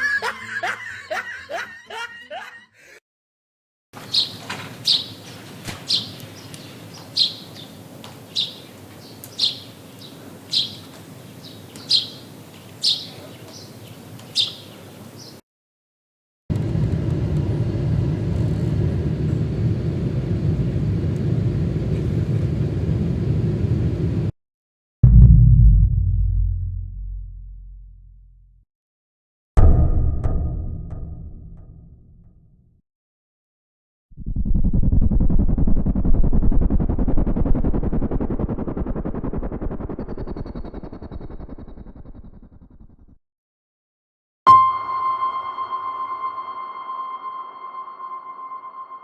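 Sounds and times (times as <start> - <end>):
steady low rumble: 16.5 - 24.3, 25.0 - 28.2, 34.2 - 41.1.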